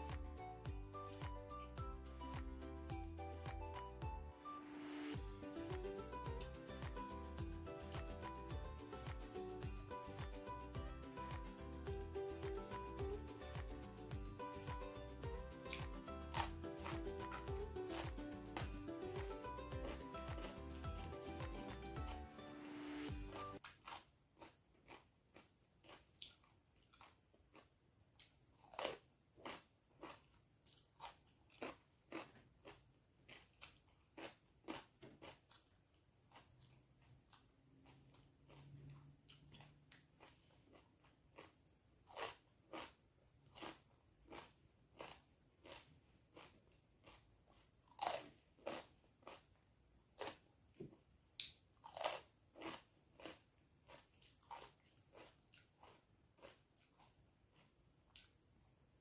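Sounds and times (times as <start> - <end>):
wet chewing and mouth smacks: 15.6 - 21.1, 23.6 - 49.4.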